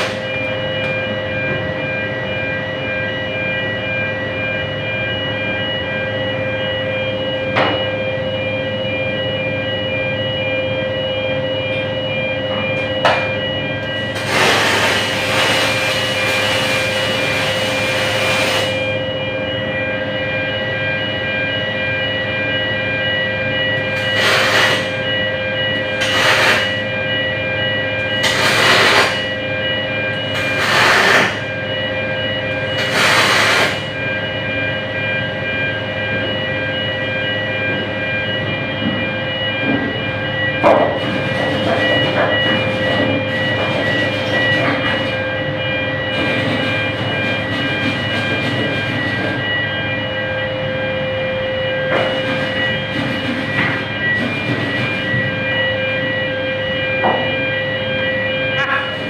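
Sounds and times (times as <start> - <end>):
welding machine hum: 0.0 - 1.8, 12.8 - 19.2, 23.8 - 27.3, 28.0 - 34.0, 40.6 - 50.3, 51.8 - 56.3
welding arc hiss: 14.2 - 18.8, 24.2 - 24.9, 26.0 - 26.7, 28.2 - 29.2, 30.4 - 31.4, 32.8 - 33.8.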